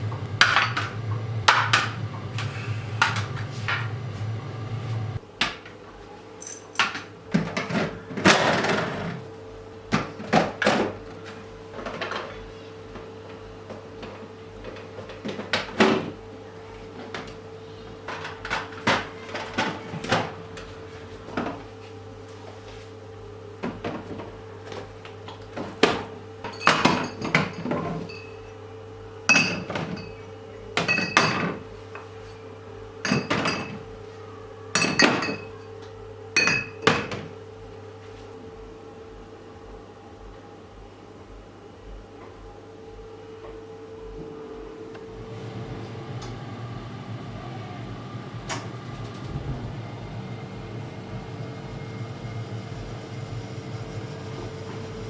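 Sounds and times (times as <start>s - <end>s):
low hum: 0.0s - 5.2s
containers knocking and clattering: 0.1s - 2.4s, 25.3s - 28.4s, 29.3s - 30.2s
glassy clinks: 6.4s - 6.8s.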